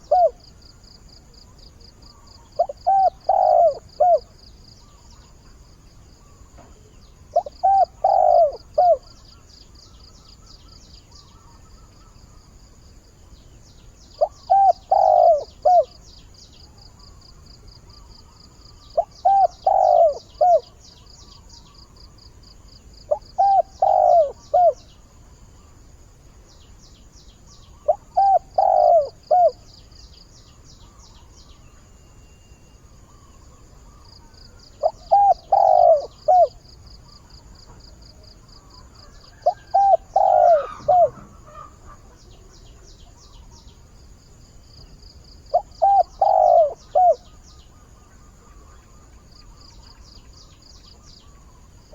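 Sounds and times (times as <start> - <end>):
dove cooing: 0.0 - 0.5, 2.5 - 4.3, 7.3 - 9.2, 14.2 - 16.0, 18.8 - 20.8, 23.1 - 25.0, 27.7 - 29.6, 33.2 - 43.2, 45.5 - 49.6.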